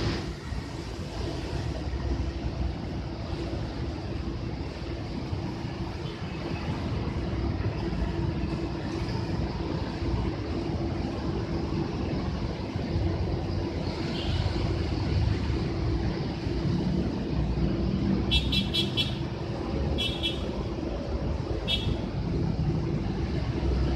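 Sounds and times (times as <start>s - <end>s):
train rumble: 0.0s - 23.9s.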